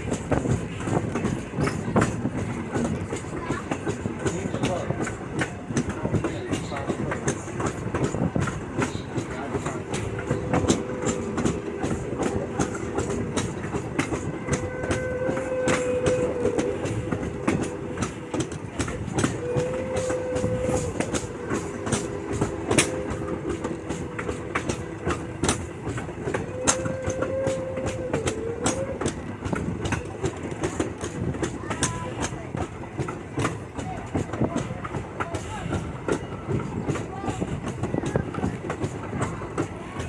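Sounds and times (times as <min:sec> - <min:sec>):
train rumble: 0:00.0 - 0:40.0
train wheels clicking over rail joints: 0:00.0 - 0:40.0.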